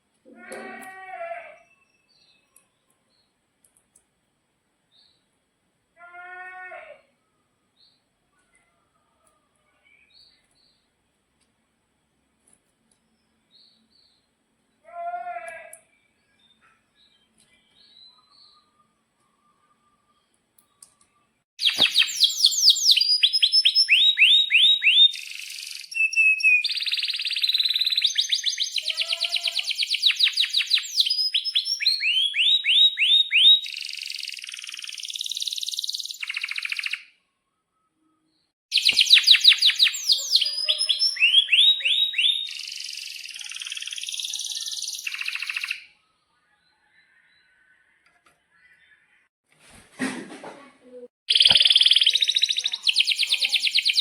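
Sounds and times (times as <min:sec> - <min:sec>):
canary singing trills: 0:21.6 - 0:37.1, 0:38.7 - 0:46.0, 0:51.3 - 0:54.0.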